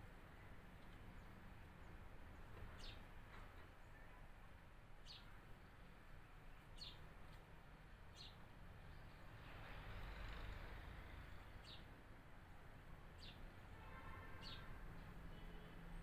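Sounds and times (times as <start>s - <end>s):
bird chirping: 2.7s - 3.0s, 5.0s - 5.4s, 6.7s - 7.1s, 11.5s - 11.9s, 13.2s - 13.5s, 14.3s - 14.7s.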